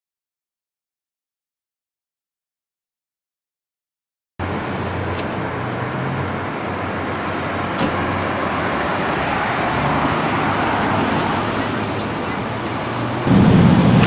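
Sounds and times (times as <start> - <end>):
streetcar rumbling on track: 4.5 - 14.0
low motor hum: 13.0 - 14.0.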